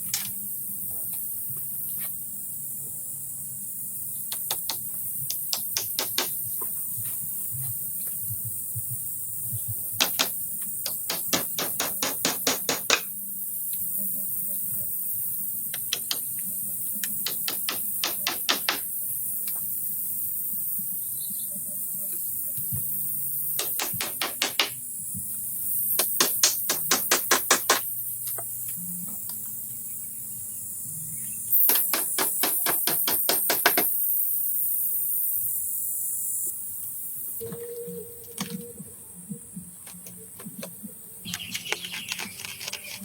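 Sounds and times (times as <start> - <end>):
steady high hiss: 0.0 - 41.4
hand tool hammering blows: 4.3 - 6.4, 10.0 - 13.1, 17.1 - 18.9, 23.6 - 24.8, 26.0 - 27.9, 31.6 - 33.9.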